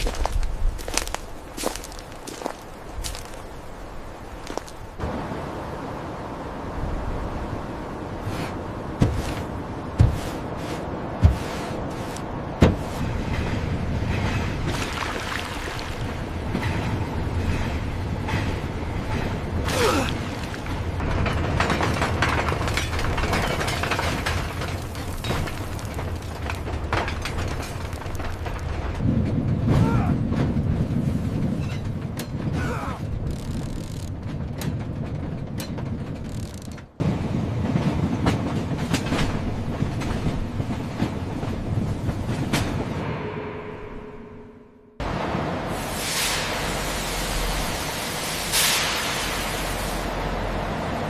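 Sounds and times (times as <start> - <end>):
metal machinery clattering: 16.1 - 37.0.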